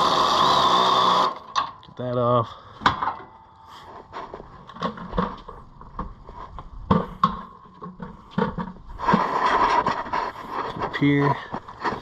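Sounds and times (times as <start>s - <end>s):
knocks and clicks of car parts: 6.9s - 8.8s.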